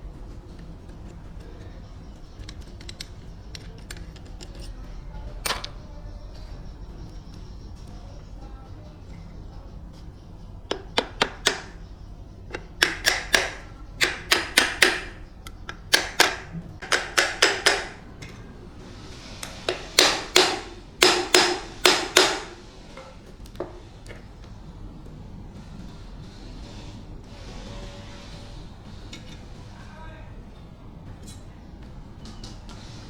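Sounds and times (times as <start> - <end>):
hammer striking metal: 10.7 - 11.9, 12.5 - 18.0, 19.7 - 22.6.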